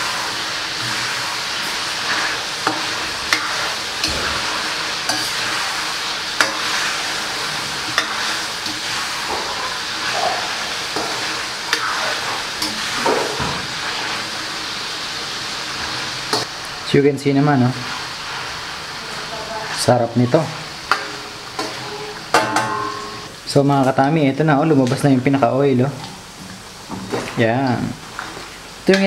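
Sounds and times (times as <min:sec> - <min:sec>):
metal ladle scraping wok: 0:00.0 - 0:14.2, 0:20.8 - 0:23.3
chicken sizzling in a wok: 0:00.0 - 0:29.0.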